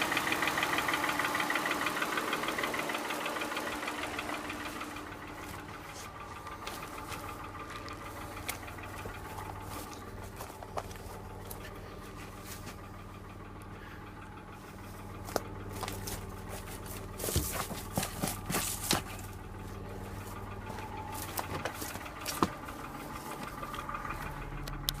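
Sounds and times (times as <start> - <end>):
car engine idling: 0.0 - 25.0
sharp clicks and knocks: 20.4 - 25.0.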